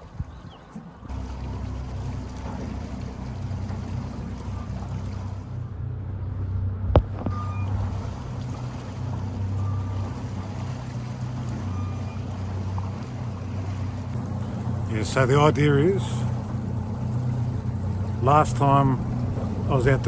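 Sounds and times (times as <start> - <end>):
wind noise: 0.0 - 0.7
water noise: 0.0 - 20.0
outboard motor running: 1.0 - 20.0.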